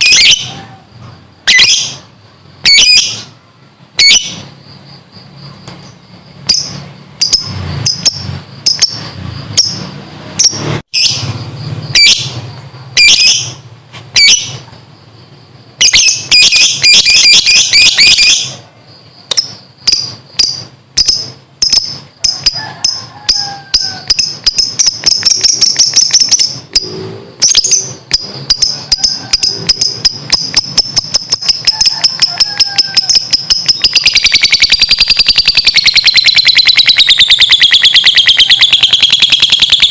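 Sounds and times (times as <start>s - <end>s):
lovebird squawking and chattering: 0.0s - 0.7s, 1.4s - 3.4s, 4.0s - 4.6s, 6.4s - 11.3s, 11.9s - 12.4s, 13.0s - 14.6s, 15.8s - 18.6s, 19.3s - 39.9s.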